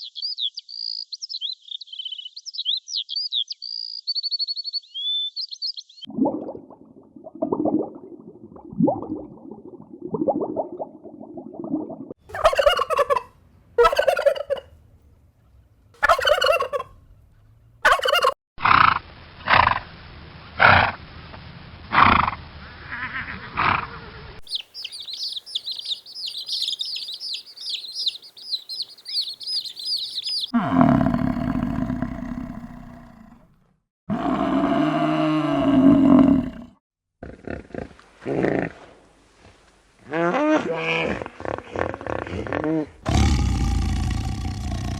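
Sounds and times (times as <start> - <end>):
farm animals calling: 12.3 - 14.7, 16.0 - 16.9, 17.8 - 18.4, 24.4 - 30.8
high-pitched chirping: 24.4 - 30.6.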